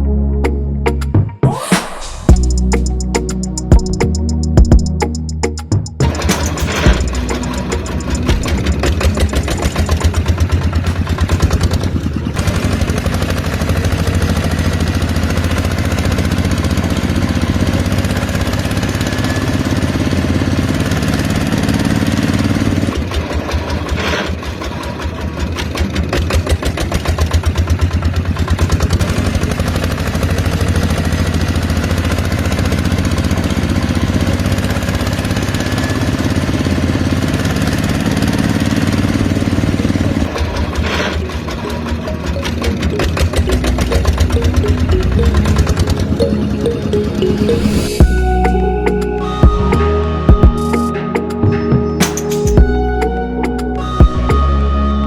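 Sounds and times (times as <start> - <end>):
small engine running: 6.1 - 46.7.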